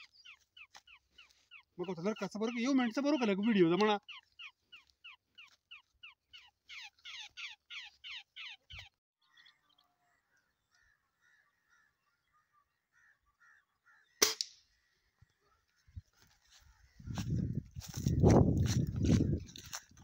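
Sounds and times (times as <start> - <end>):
bird squawking: 0.0 - 9.8
faint bird calls: 0.0 - 18.3.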